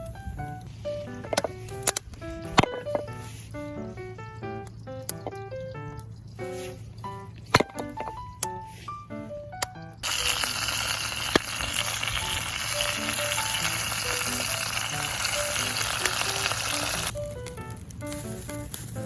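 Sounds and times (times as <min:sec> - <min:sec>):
food sizzling in a hot pan: 0:10.0 - 0:17.1.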